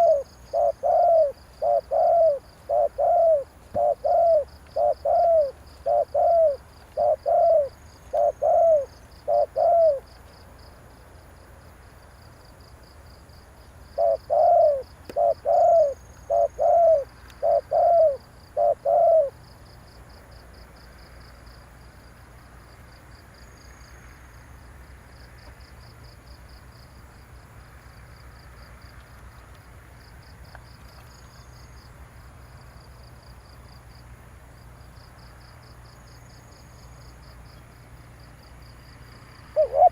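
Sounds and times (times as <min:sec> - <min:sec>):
dove cooing: 0:00.0 - 0:10.1, 0:14.0 - 0:19.4, 0:39.5 - 0:39.9
insect chirring: 0:00.0 - 0:11.4, 0:12.2 - 0:22.1.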